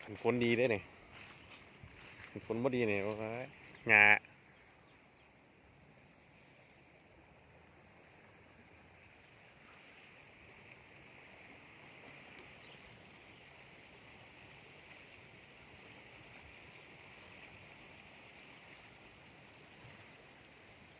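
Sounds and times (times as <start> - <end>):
insect drone: 0.0 - 20.9.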